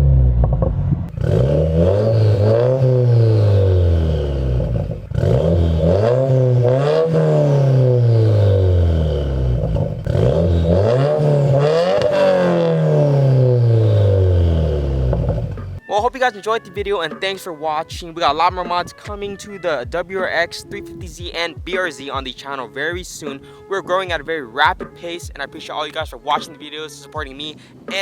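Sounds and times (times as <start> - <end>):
car engine revving: 0.0 - 15.8.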